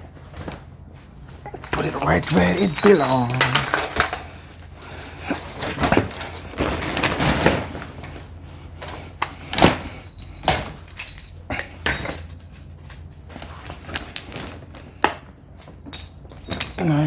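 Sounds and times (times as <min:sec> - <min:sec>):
metal knocks and clinks: 0:01.5 - 0:04.2, 0:10.1 - 0:13.1, 0:13.9 - 0:17.0.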